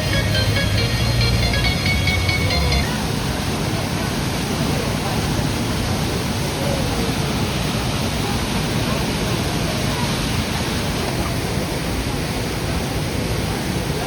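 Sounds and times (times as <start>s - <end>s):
background music: 0.0s - 3.0s
waterfall pouring: 2.2s - 14.0s.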